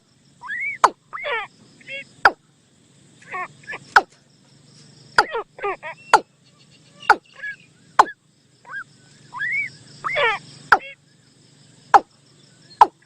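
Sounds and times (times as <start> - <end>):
bird whistles and calls: 0.4 - 2.4, 3.2 - 4.1, 5.1 - 11.1, 12.0 - 13.0.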